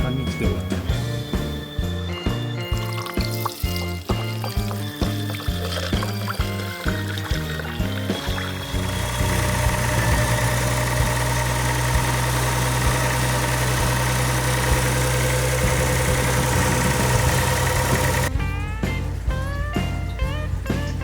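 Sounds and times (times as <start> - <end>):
car engine idling: 4.2 - 21.0.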